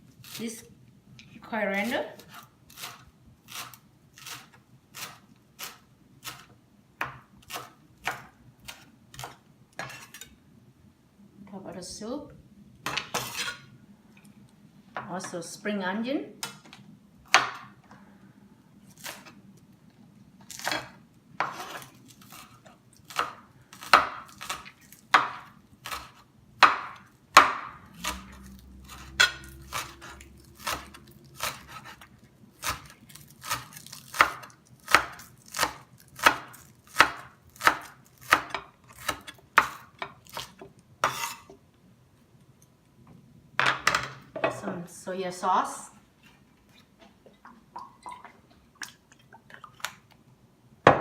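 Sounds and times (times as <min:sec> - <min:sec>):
knife chopping on cutting board: 0:02.3 - 0:10.1, 0:23.1 - 0:32.0, 0:32.6 - 0:41.4.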